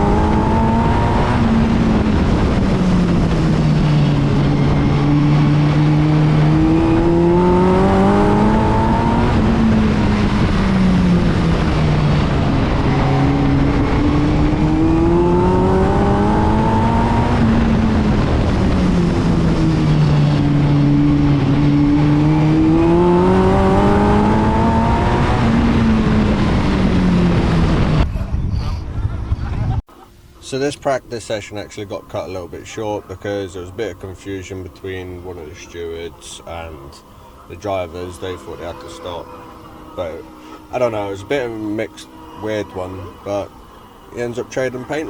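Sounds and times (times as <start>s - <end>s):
race car engine running hard: 0.0s - 28.2s, 31.5s - 45.0s.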